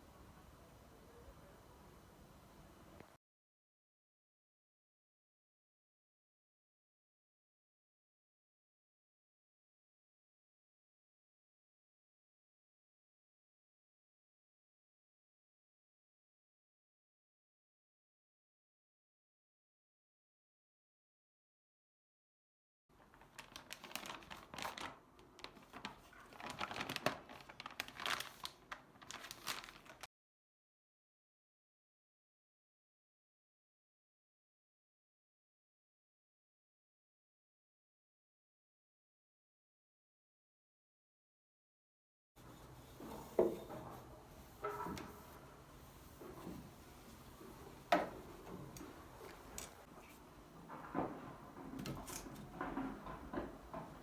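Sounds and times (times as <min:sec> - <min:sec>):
packaging crinkling: 0:23.0 - 0:30.1.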